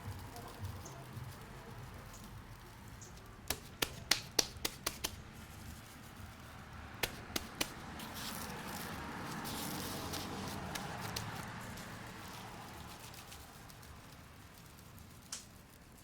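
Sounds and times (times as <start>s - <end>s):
steady hiss: 0.0s - 16.0s
sharp taps: 3.5s - 5.2s, 7.0s - 8.4s.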